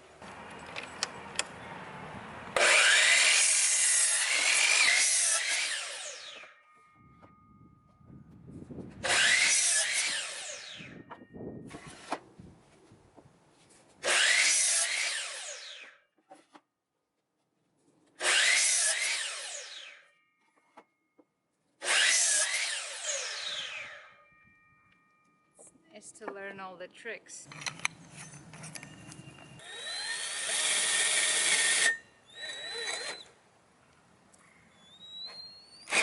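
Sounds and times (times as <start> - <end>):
power tool cutting wood: 2.6 - 6.6, 9.0 - 11.0, 14.0 - 16.0, 18.2 - 20.1, 21.8 - 24.2, 29.6 - 33.3.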